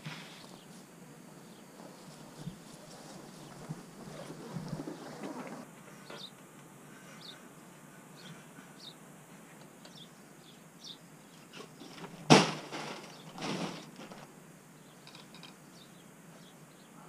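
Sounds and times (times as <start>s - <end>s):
small birds chirping: 1.4s - 11.8s, 14.7s - 17.0s
sharp thump: 12.3s - 13.8s.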